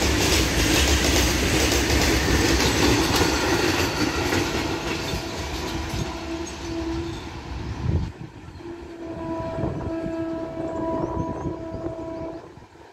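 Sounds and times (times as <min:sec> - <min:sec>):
freight train wheels clattering: 0:00.0 - 0:08.2.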